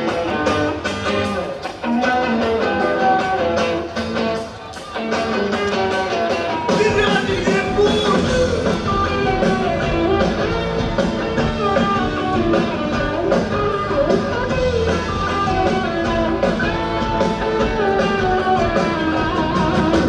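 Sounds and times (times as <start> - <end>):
bass guitar: 0.0 - 20.0
electric guitar melody: 0.0 - 20.0
steady drum beat: 6.7 - 20.0.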